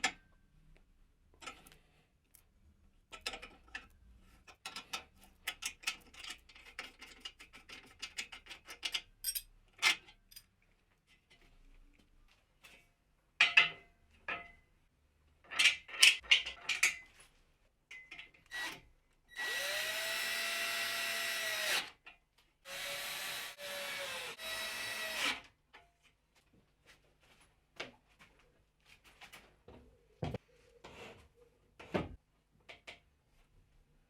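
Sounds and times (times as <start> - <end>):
electric drill running in bursts: 19.4 - 21.8, 22.7 - 25.4.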